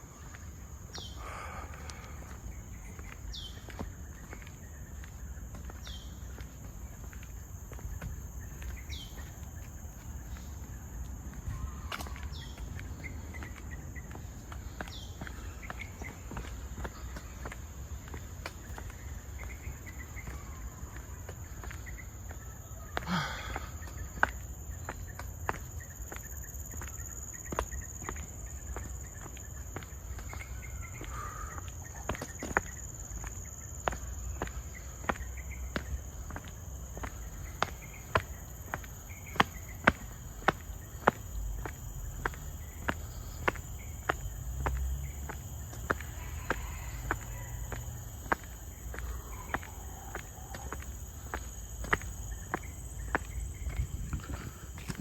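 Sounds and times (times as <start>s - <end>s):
insects droning: 0.0s - 55.0s
footsteps walking: 0.1s - 19.6s, 32.1s - 55.0s.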